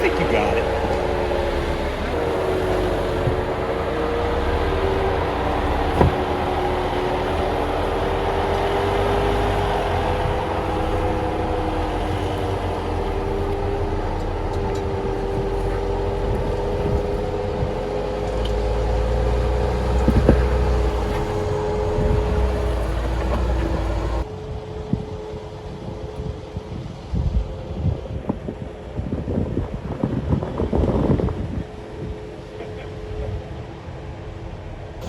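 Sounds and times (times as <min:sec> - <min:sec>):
vehicle engine and drivetrain hum: 0:00.0 - 0:26.2.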